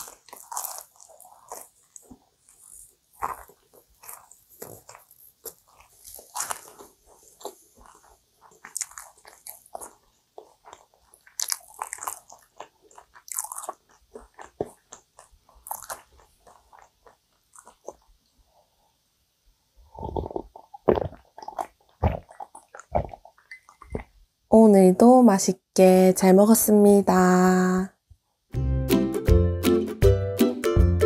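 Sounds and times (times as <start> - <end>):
chewing pastry: 0.0 - 18.9, 19.8 - 24.2
wet mouth clicks: 19.9 - 24.1.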